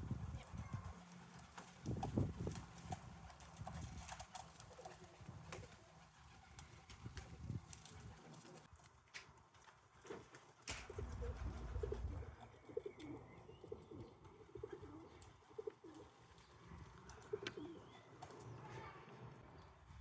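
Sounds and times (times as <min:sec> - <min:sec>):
pigeons cooing: 0:10.8 - 0:18.6.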